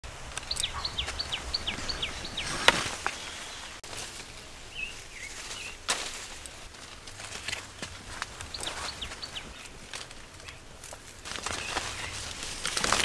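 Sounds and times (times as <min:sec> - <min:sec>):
bird calling falling notes: 0:00.3 - 0:03.8
faint chirps: 0:00.4 - 0:03.8.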